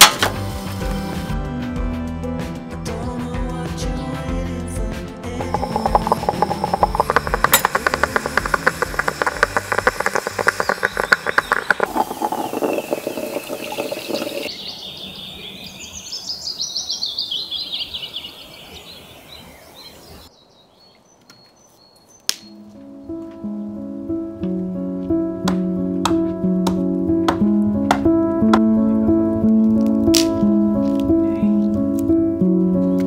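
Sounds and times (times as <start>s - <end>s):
rapid dense crackling: 5.4s - 14.5s
songbird singing trills: 5.4s - 23.9s.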